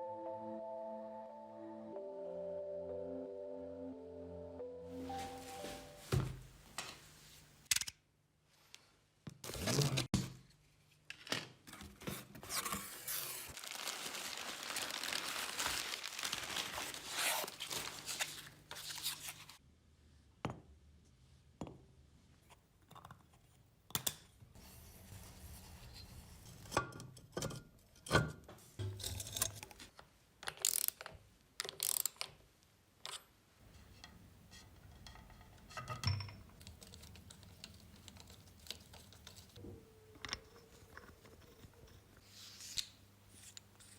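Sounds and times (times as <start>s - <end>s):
tools clicking and knocking: 34.0s - 39.5s.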